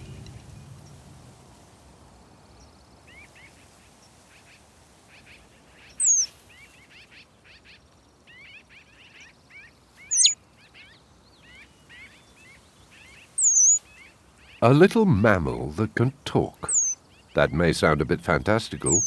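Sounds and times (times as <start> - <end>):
birds chirping: 5.9 - 6.3, 10.0 - 10.4, 12.8 - 13.8, 14.6 - 19.0
high whistled bird call: 6.0 - 6.3, 10.1 - 10.4, 13.4 - 13.8, 16.6 - 17.0.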